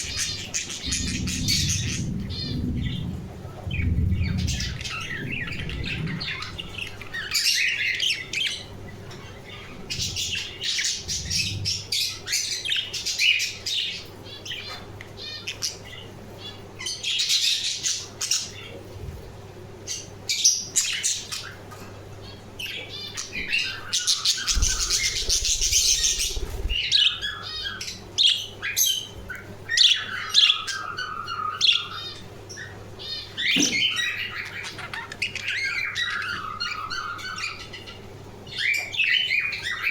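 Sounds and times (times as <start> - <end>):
budgerigars chattering: 22.6 - 39.9.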